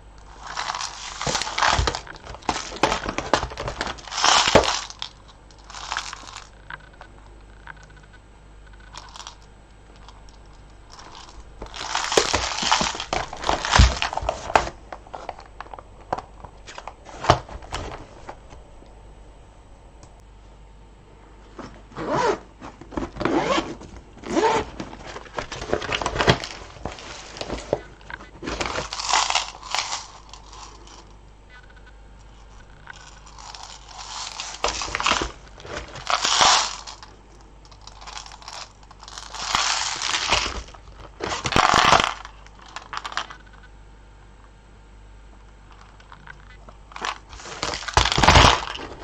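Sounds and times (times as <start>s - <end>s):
beads clicking and rustling: 0.2s - 7.0s, 8.8s - 16.9s, 24.4s - 43.5s, 45.7s - 49.0s.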